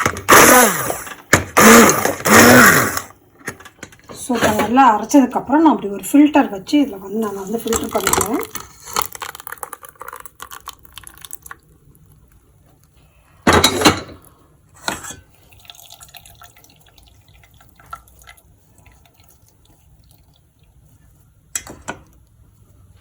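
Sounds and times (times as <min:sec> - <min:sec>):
soup splashing into strainer: 0:07.7 - 0:12.2, 0:15.1 - 0:22.2.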